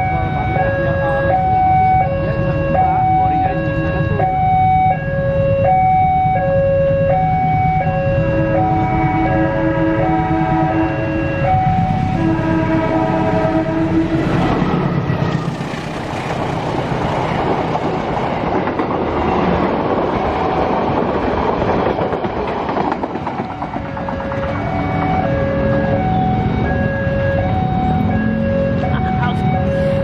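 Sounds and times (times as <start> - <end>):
two-pitch electronic warning tone: 0.0 - 15.1
diesel train passing: 0.0 - 30.0.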